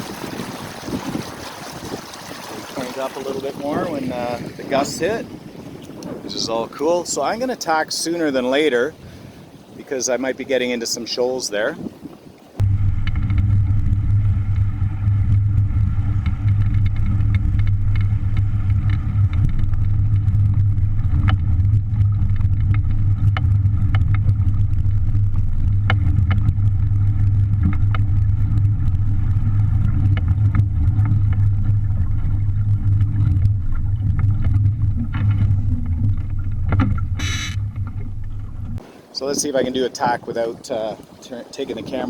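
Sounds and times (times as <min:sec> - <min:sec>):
water splashes: 0:00.0 - 0:12.6, 0:16.2 - 0:42.0
wind buffeting microphone: 0:00.0 - 0:12.6, 0:23.6 - 0:42.0.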